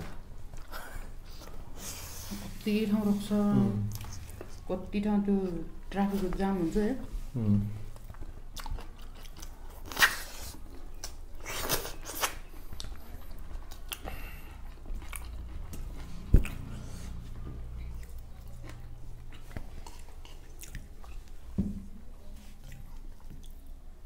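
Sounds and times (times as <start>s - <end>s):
chewing and mouth sounds: 3.9s - 4.6s, 7.8s - 21.5s, 22.2s - 23.8s.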